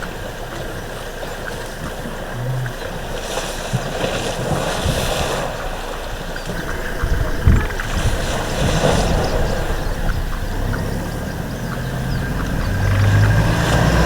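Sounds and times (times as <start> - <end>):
water splashing: 0.0 - 14.0
wind buffeting microphone: 3.8 - 14.0.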